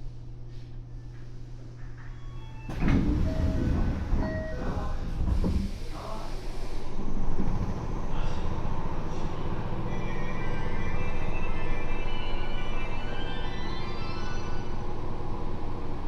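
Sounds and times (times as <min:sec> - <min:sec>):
subway car hum: 0:00.0 - 0:16.0
doors sliding open: 0:02.7 - 0:06.6.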